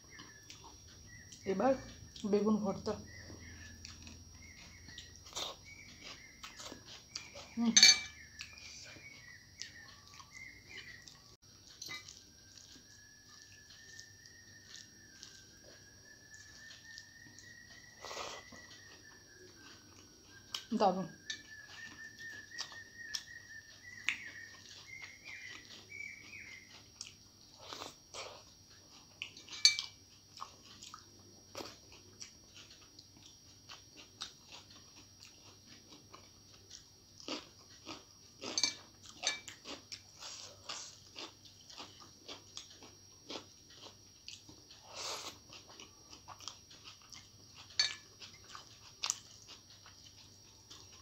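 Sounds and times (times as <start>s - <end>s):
crunching bites: 30.4s - 51.0s.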